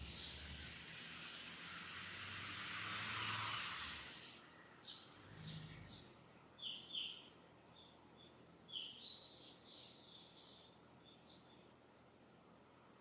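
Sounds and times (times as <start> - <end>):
distant small birds chirping: 0.0 - 11.9.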